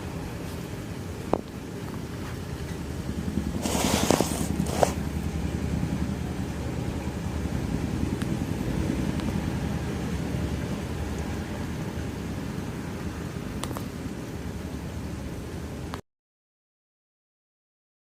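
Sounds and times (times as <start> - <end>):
helicopter rotor drone: 0.0 - 16.0
short burst of hiss: 3.6 - 5.0.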